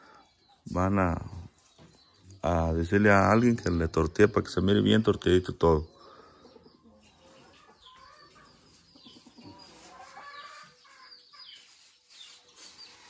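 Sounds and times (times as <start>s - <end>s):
hen clucking: 3.1s - 13.0s.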